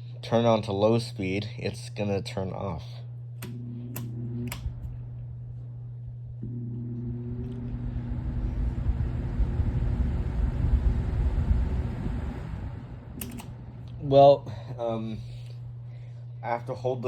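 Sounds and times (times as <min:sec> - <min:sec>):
electrical motor hum: 0:00.0 - 0:17.0
fan motor spinning up whir: 0:00.0 - 0:17.0
fan switch clicks: 0:03.4 - 0:04.9, 0:13.2 - 0:14.0
rush of air from fan blades: 0:07.7 - 0:16.2.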